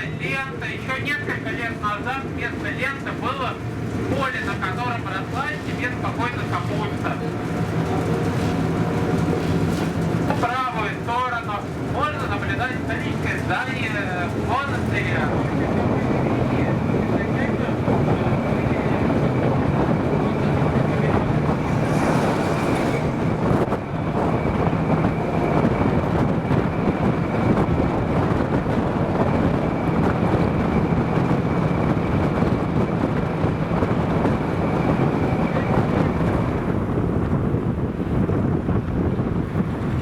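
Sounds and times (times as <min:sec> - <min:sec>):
tram rumbling along rails: 0:00.0 - 0:40.0
high whine: 0:13.0 - 0:37.4.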